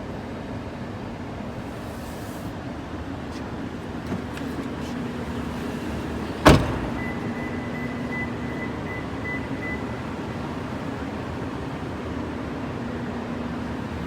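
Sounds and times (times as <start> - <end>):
car door shutting: 3.3 - 8.2.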